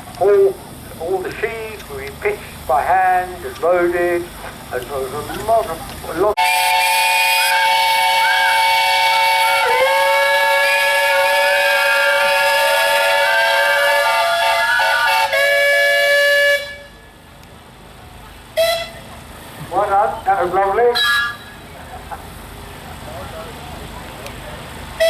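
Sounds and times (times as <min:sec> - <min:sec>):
steam engine whistles: 0:06.4 - 0:17.2, 0:18.5 - 0:19.1, 0:20.8 - 0:21.8.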